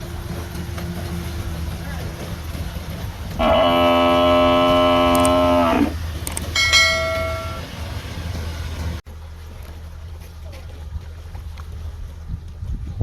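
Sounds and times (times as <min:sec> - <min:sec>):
low engine hum: 0:00.0 - 0:13.0
long horn blast: 0:03.4 - 0:07.7
short high horn toot: 0:06.6 - 0:07.6.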